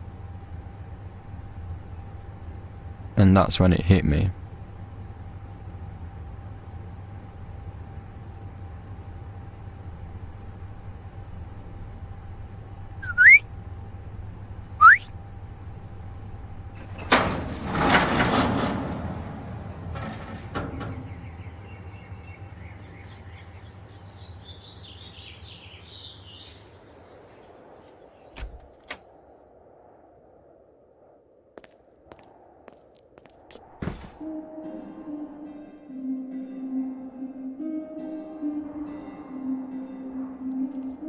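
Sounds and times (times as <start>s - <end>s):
low hum: 0.0s - 25.1s
young bird chirping: 13.0s - 13.4s.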